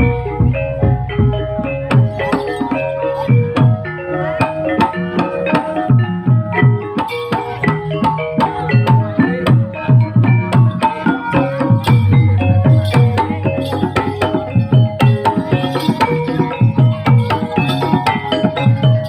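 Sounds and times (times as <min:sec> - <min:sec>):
metallophones repeating notes: 0:00.0 - 0:19.0
hand drums playing dense strokes: 0:06.0 - 0:19.0.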